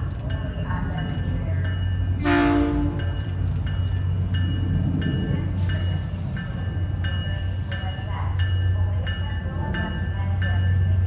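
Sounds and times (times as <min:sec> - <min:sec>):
train rumble: 0:00.0 - 0:11.0
train horn blast: 0:02.2 - 0:03.0.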